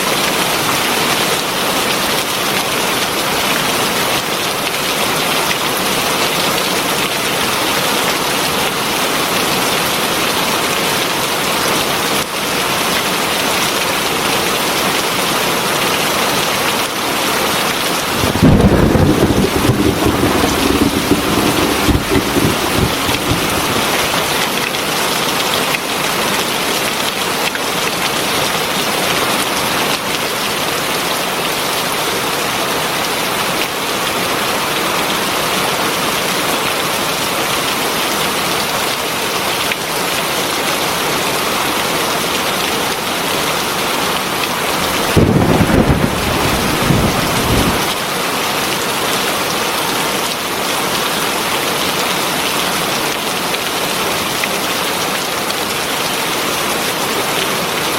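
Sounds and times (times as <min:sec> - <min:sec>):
heavy rain falling: 0:17.7 - 0:27.3, 0:39.8 - 0:57.9
low rumble of thunder: 0:18.0 - 0:24.6, 0:44.9 - 0:47.9.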